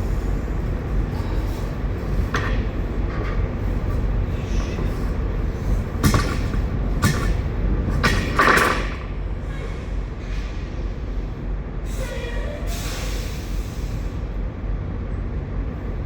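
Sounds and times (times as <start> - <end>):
low rumble: 0.0 - 11.9
knocks inside truck trailer: 2.3 - 9.1.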